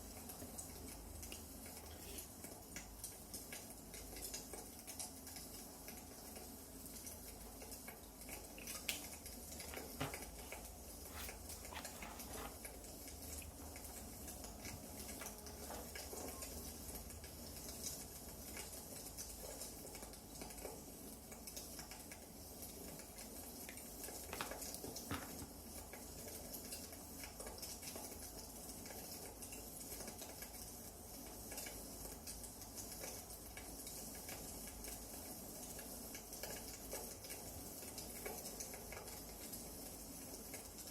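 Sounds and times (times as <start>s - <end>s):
wood fire crackling: 8.3s - 16.2s.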